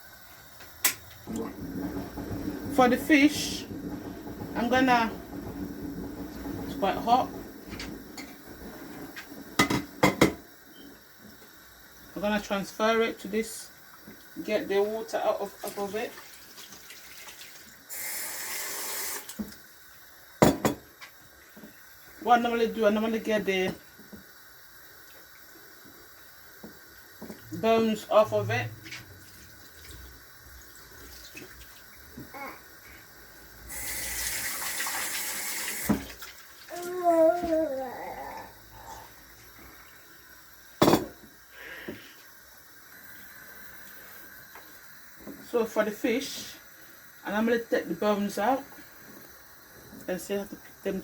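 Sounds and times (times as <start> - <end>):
water pouring off: 1.2 - 10.0, 15.5 - 19.4, 33.5 - 37.7
kitchenware knocks: 9.6 - 10.4, 20.4 - 20.8, 40.8 - 41.2
sharp knock of kitchenware: 40.8 - 41.2
kitchen handling sounds: 40.8 - 41.3.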